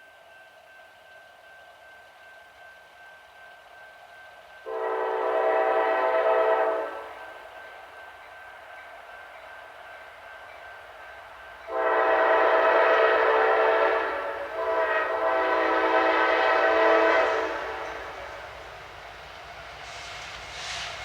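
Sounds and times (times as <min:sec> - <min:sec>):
locomotive air horn blasts: 0:04.7 - 0:07.3, 0:11.7 - 0:18.4.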